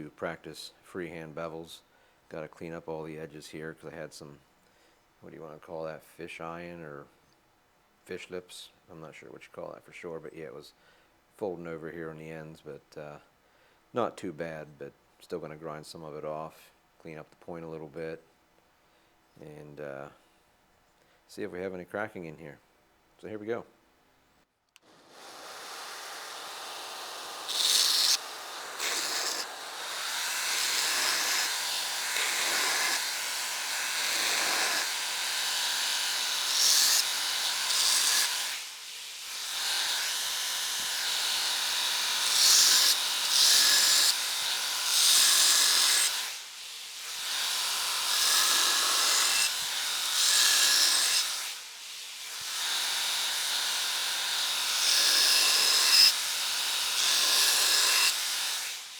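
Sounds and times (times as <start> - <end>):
belt grinder grinding steel: 24.8 - 58.9.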